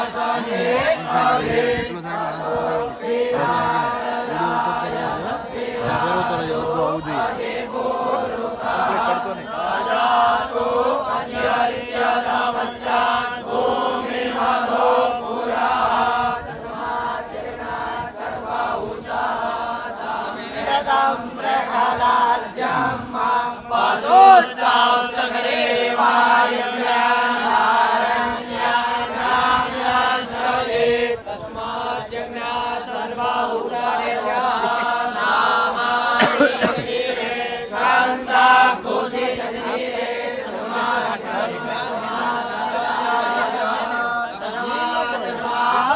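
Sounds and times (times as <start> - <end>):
group chanting in unison: 0.0 - 45.9.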